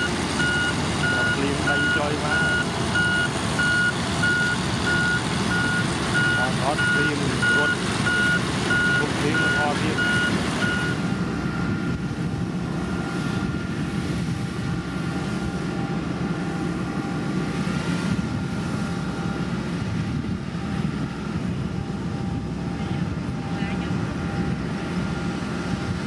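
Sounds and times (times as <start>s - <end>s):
reversing beep: 0.0s - 12.0s
diesel machinery engine rumble: 0.0s - 26.0s.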